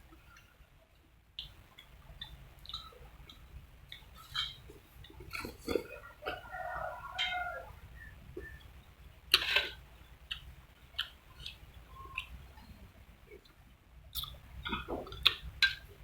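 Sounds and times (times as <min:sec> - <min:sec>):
mouth eating sounds: 0:09.3 - 0:12.6, 0:14.1 - 0:15.8.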